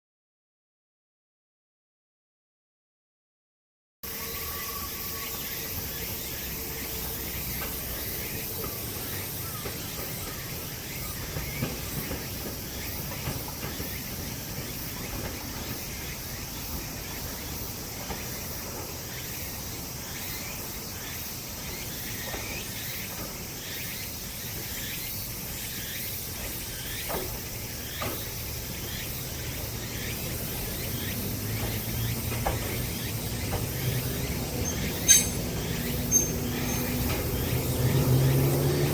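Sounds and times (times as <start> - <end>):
insects chirring: 4.1 - 38.9
train rumble: 4.1 - 38.9.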